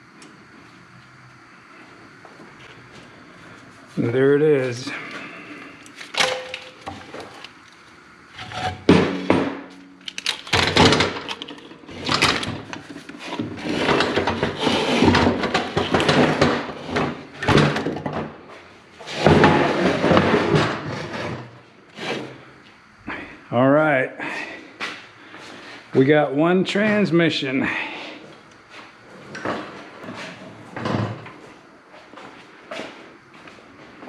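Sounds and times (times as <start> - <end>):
metal knocking and scraping on wood: 8.4 - 18.2.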